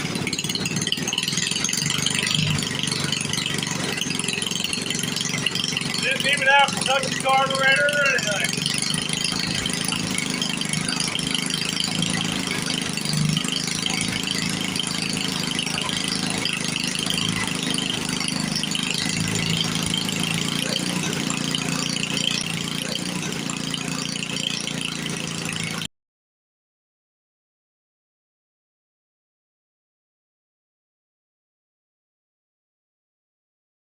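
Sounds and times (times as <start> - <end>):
single-cylinder engine idling: 0.0 - 25.9.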